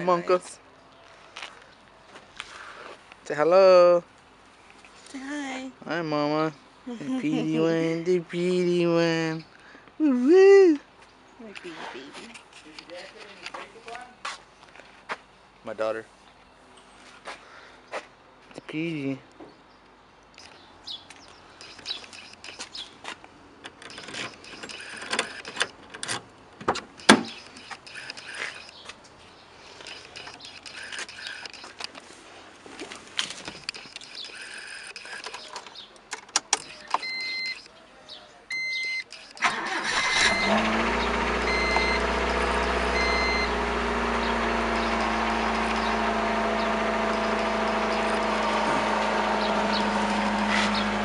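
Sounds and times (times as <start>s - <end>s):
car door and keys clicking: 21.6s - 22.8s, 23.6s - 28.8s, 29.8s - 32.0s, 33.2s - 37.7s
warning chime beeping: 37.0s - 37.7s, 38.5s - 39.4s, 40.1s - 40.7s, 41.4s - 43.6s
car engine starting and idling: 39.4s - 51.0s.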